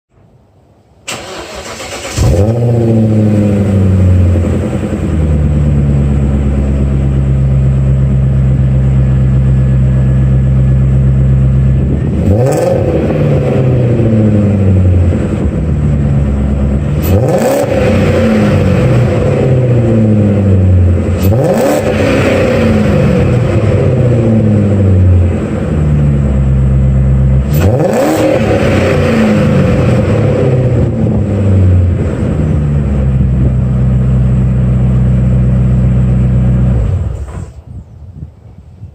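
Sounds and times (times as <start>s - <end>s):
car engine cranking: 1.0s - 5.0s
vee eight engine idling and revving: 1.1s - 37.7s.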